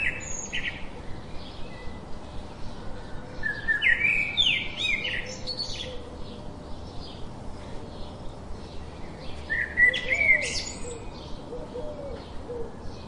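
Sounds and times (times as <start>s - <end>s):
birds chirping and calling: 0.0s - 13.0s
low cooing: 9.9s - 12.8s.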